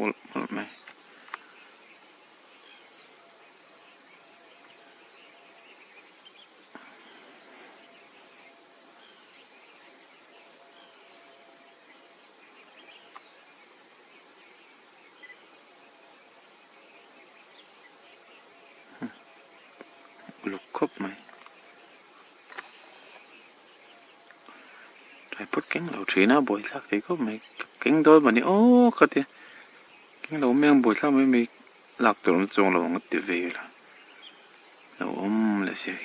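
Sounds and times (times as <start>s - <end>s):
insect chorus: 0.0s - 36.0s
faint clicks: 0.8s - 1.5s.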